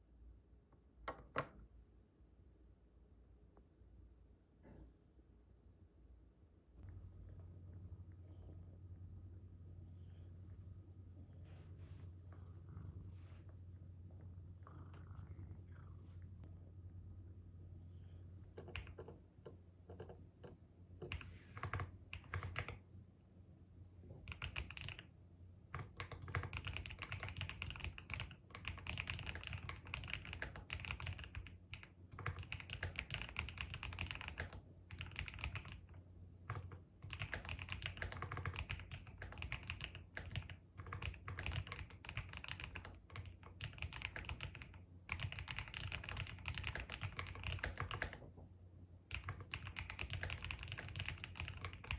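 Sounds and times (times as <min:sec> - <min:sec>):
computer keyboard typing: 0:18.5 - 0:22.8, 0:24.2 - 0:25.1, 0:25.7 - 0:48.3, 0:49.1 - 0:51.9.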